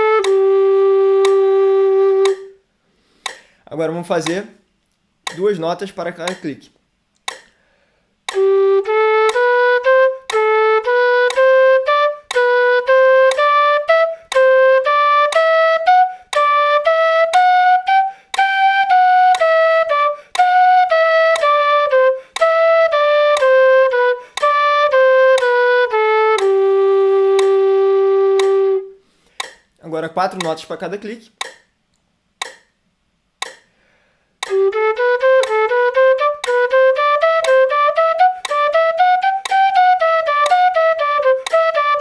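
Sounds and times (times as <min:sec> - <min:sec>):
metronome clicks: 0:00.0 - 0:00.5, 0:01.2 - 0:01.6, 0:02.2 - 0:02.6, 0:03.2 - 0:03.5, 0:04.2 - 0:07.6, 0:08.2 - 0:08.5, 0:09.2 - 0:11.6, 0:12.2 - 0:15.6, 0:16.3 - 0:19.7, 0:20.3 - 0:21.8, 0:22.4 - 0:22.6, 0:23.2 - 0:25.7, 0:26.3 - 0:26.7, 0:27.3 - 0:27.7, 0:28.3 - 0:30.8, 0:31.4 - 0:32.8, 0:33.4 - 0:33.7, 0:34.4 - 0:42.0
end-blown flute playing scales: 0:00.0 - 0:02.6, 0:08.3 - 0:29.0, 0:34.4 - 0:42.0.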